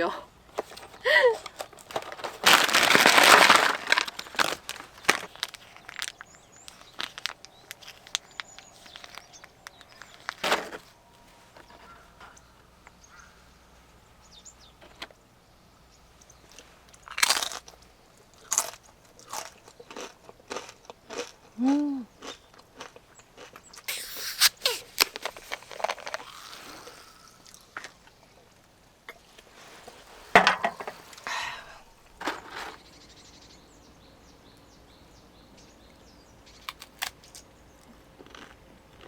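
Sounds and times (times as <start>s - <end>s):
crunchy snack being chewed: 1.6s - 10.4s, 17.0s - 17.8s, 18.4s - 28.1s, 36.6s - 39.0s.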